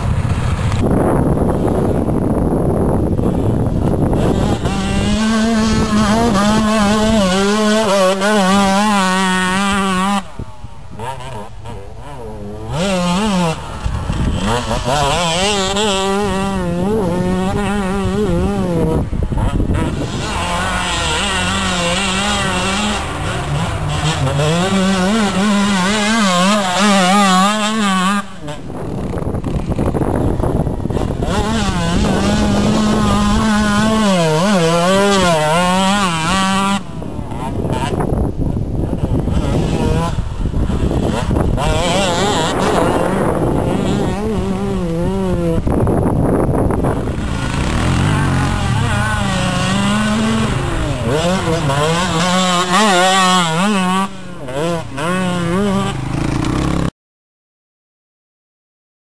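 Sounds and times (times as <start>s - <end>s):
two-stroke engine revving: 0.0s - 56.9s.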